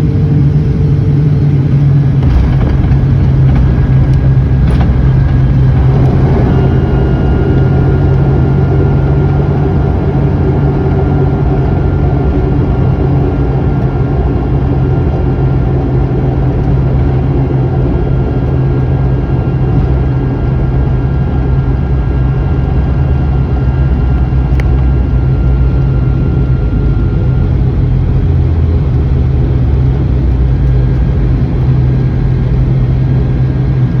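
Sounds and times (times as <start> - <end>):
airliner engines droning: 0.0 - 34.0
faint thin engine whine: 0.0 - 34.0.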